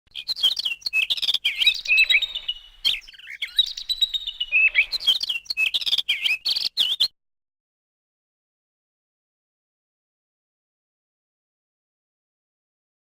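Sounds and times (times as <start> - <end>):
small birds chirping: 0.1 - 7.1.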